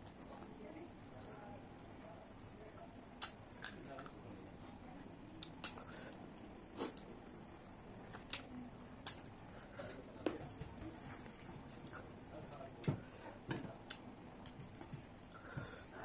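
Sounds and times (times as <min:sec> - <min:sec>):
person chewing with wet smacks: 0:01.8 - 0:04.2, 0:05.4 - 0:07.4, 0:08.0 - 0:09.3, 0:12.8 - 0:15.8.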